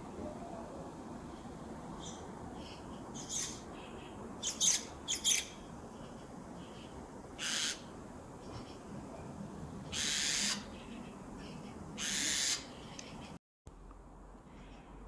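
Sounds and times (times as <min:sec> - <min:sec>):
bird harsh high-pitched calls: 0:02.0 - 0:05.6, 0:06.6 - 0:07.9, 0:09.9 - 0:13.3.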